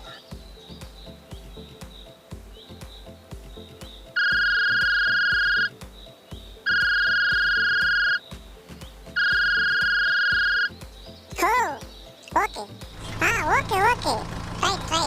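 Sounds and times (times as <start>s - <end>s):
background music with steady beat: 0.0s - 15.0s
long electronic beeps: 4.2s - 5.7s, 6.7s - 8.2s, 9.2s - 10.7s.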